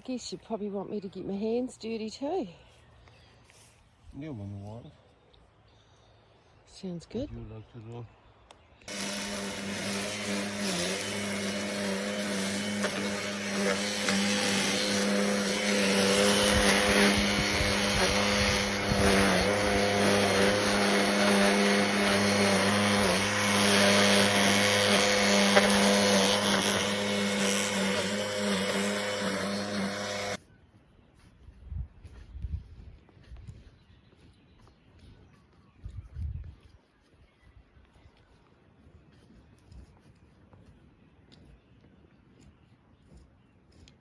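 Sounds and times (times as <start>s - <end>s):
small motor machine whirring: 8.9s - 30.4s.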